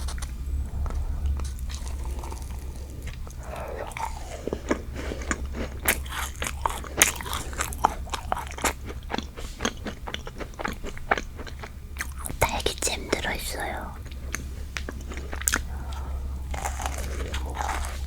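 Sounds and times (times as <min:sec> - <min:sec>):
macaron shell crunching: 0:01.4 - 0:12.2, 0:16.5 - 0:18.0.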